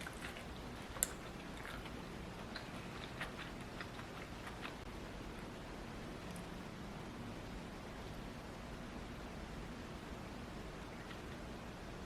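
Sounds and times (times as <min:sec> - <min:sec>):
faint chewing: 0:00.0 - 0:04.9.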